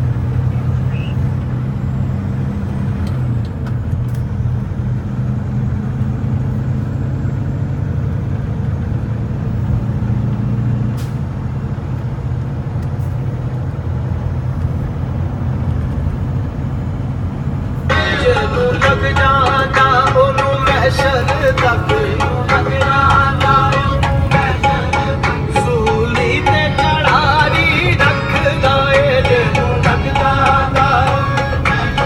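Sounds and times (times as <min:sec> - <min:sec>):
truck engine and road noise: 0:00.0 - 0:32.0
music with singing: 0:17.9 - 0:32.0.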